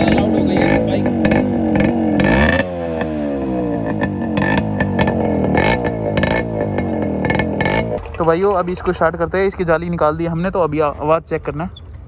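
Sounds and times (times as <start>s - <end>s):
two-stroke engine revving: 0.0s - 8.1s
exhaust pops: 0.0s - 12.0s.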